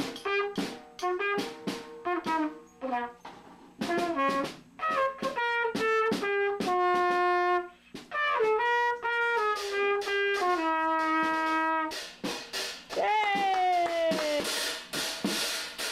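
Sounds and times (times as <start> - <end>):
brass instrument playing a tune: 0.0 - 12.1.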